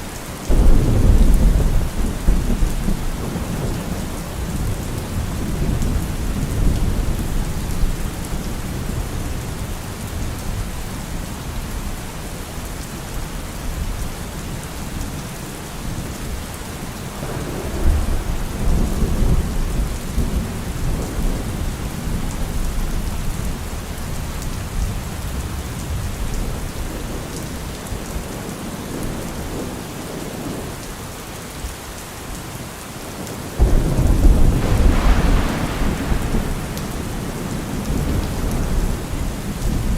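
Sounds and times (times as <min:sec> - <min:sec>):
steady rain: 0:00.0 - 0:39.9
rolling thunder: 0:00.5 - 0:10.3, 0:17.2 - 0:23.2, 0:33.6 - 0:39.9.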